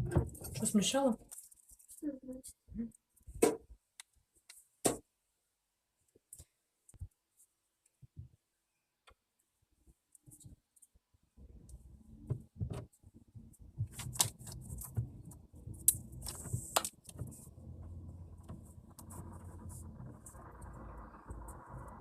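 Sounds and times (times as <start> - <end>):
steady low rumble: 14.6 - 22.0.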